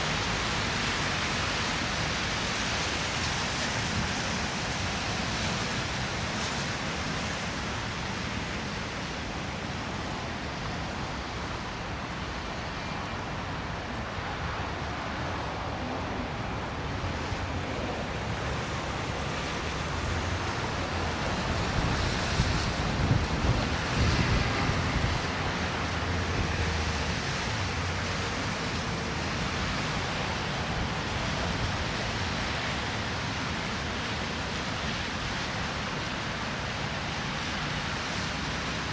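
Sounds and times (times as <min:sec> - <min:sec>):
traffic: 0:00.0 - 0:38.9
wind on microphone: 0:20.8 - 0:28.0.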